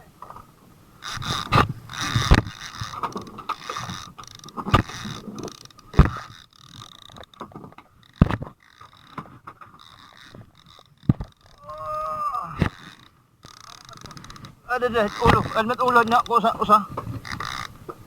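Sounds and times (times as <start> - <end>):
knocks and bumps of fishing gear: 1.1 - 11.7, 12.5 - 18.0.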